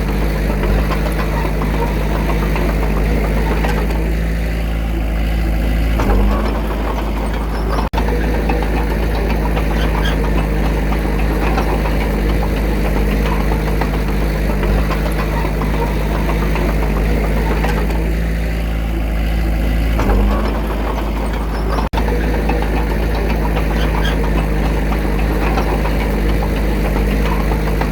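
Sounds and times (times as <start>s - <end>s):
diesel engine rumbling: 0.0s - 27.9s.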